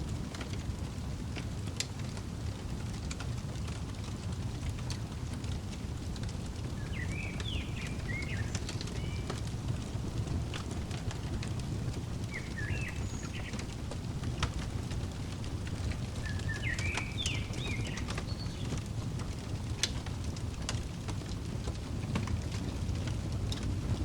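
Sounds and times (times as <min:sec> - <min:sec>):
wood fire crackling: 0:00.0 - 0:24.0
small bird chirping: 0:06.7 - 0:19.0.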